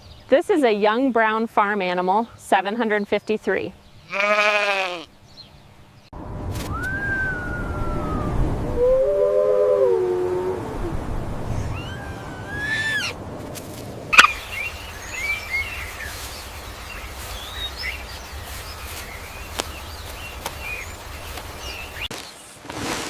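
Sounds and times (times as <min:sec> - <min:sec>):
gliding bird call: 0:11.5 - 0:13.2, 0:14.2 - 0:14.7
bird chirps: 0:14.1 - 0:22.1.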